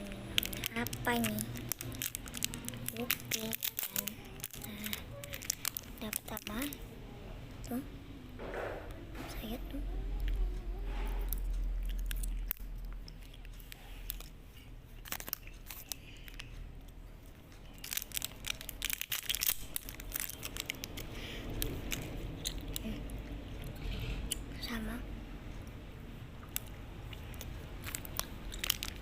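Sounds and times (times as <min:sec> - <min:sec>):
chewing and crunching food: 0:00.0 - 0:06.8, 0:10.1 - 0:24.6, 0:26.4 - 0:29.0
crisp crackles: 0:00.0 - 0:06.8, 0:10.2 - 0:14.3, 0:15.0 - 0:16.6, 0:17.6 - 0:23.1, 0:26.5 - 0:29.0.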